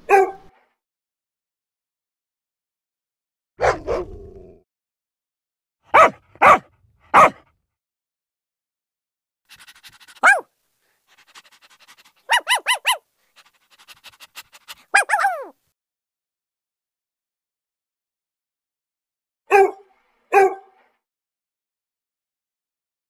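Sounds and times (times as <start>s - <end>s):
dog barking: 0.0s - 0.6s, 3.6s - 4.2s, 5.9s - 7.5s, 9.5s - 10.5s, 11.1s - 15.5s, 19.5s - 20.9s
dog yelping: 3.6s - 4.2s, 6.0s - 7.4s, 9.5s - 10.5s, 11.1s - 13.8s, 14.4s - 15.6s, 19.5s - 20.6s
dog high yips: 6.0s - 6.6s, 9.5s - 10.5s, 11.2s - 13.5s, 14.4s - 15.6s.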